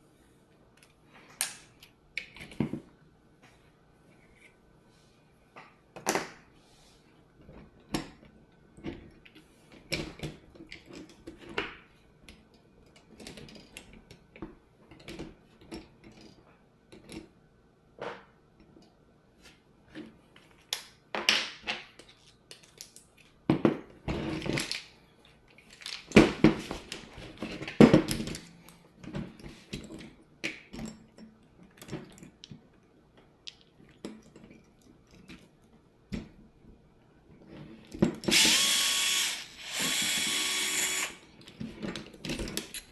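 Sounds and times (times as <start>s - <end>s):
tools and metal parts clattering: 41.4s - 42.9s.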